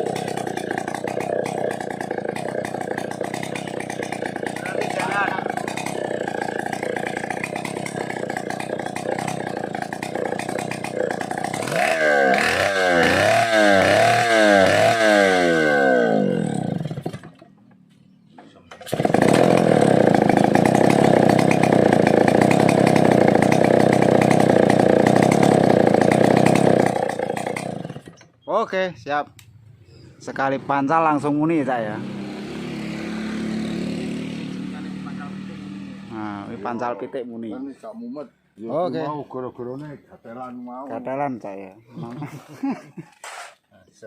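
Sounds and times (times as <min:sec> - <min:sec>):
chainsaw engine revving: 0:00.0 - 0:17.4, 0:18.7 - 0:28.3, 0:31.2 - 0:36.8.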